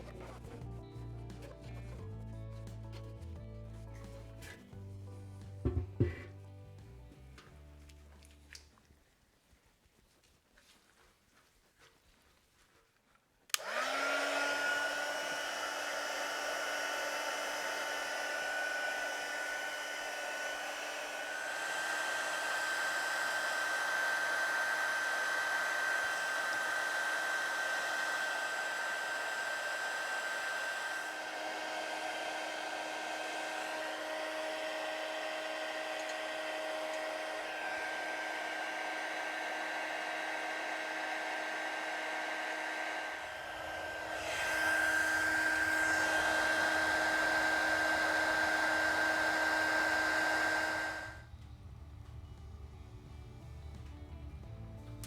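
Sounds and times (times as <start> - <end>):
hot-air blower switch click: 13.5 - 14.4, 35.8 - 37.1
hot-air blower motor whine: 13.5 - 52.5.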